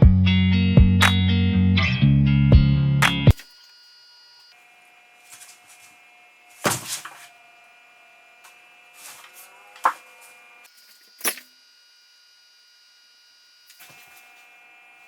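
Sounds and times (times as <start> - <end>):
music: 0.0 - 3.4.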